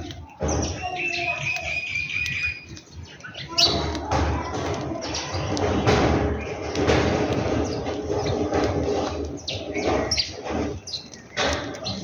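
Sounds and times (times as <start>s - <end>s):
background murmur: 0.0s - 12.0s
small birds chirping: 0.0s - 12.0s.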